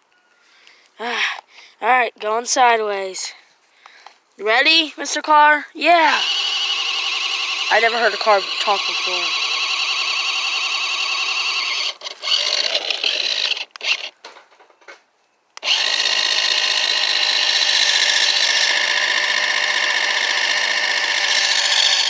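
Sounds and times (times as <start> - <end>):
toy car electric motor whining: 6.0 - 14.2, 15.6 - 22.0.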